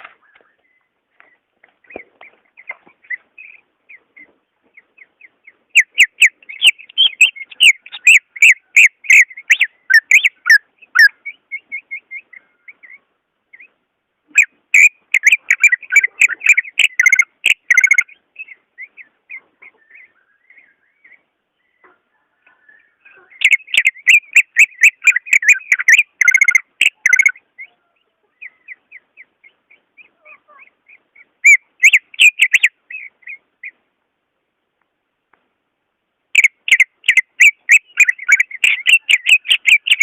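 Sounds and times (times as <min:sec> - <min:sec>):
bird chirping: 0:00.0 - 0:34.9, 0:36.3 - 0:40.0
bird whistling rapid notes: 0:31.4 - 0:32.7.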